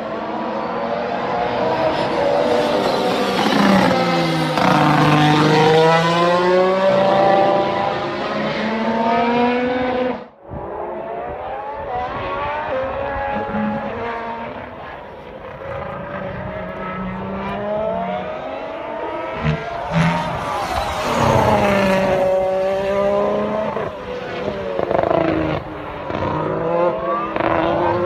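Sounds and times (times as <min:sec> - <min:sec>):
racing car engine accelerating: 0:01.2 - 0:28.0.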